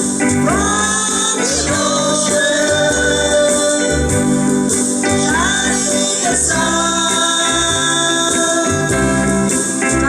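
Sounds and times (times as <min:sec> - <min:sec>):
low bass beat: 0:00.2 - 0:02.2
band playing sustained chord: 0:00.2 - 0:02.4.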